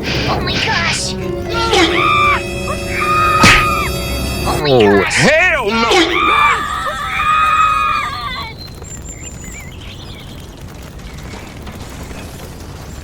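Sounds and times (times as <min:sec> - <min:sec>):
high vocal cry: 0:00.2 - 0:03.9, 0:04.6 - 0:08.5.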